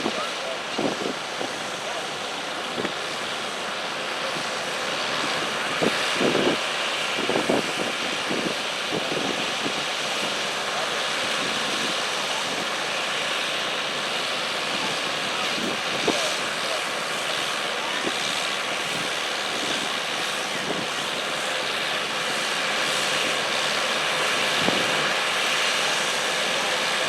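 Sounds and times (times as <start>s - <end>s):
wind on microphone: 0.0s - 1.6s, 5.2s - 10.4s, 18.0s - 23.6s, 24.2s - 25.7s.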